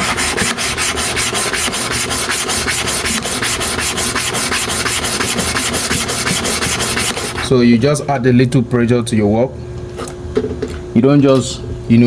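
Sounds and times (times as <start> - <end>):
metal blade rasping on stone: 0.0 - 7.4.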